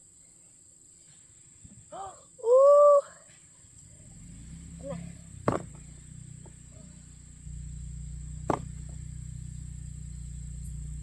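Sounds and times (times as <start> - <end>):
insects trilling: 0.0 - 11.0
low engine hum: 3.6 - 11.0
digging tool striking soil: 5.4 - 6.0, 8.4 - 9.0.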